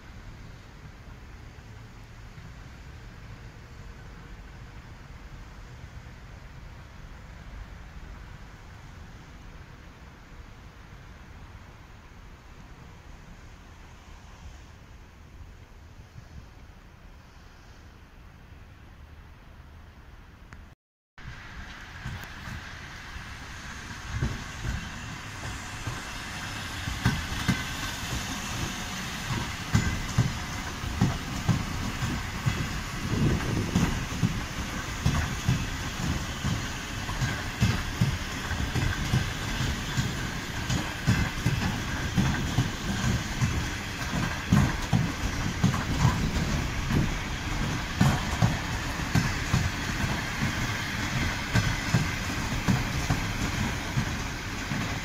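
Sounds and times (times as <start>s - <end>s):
train running gear rumble: 21.2s - 55.0s
wheels clattering over rail joints: 24.0s - 55.0s.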